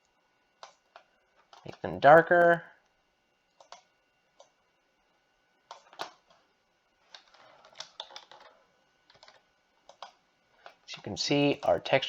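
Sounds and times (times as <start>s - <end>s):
mouse and keyboard clicking: 0.6s - 1.8s, 3.6s - 4.5s, 5.7s - 6.3s, 7.1s - 8.5s, 9.1s - 10.8s.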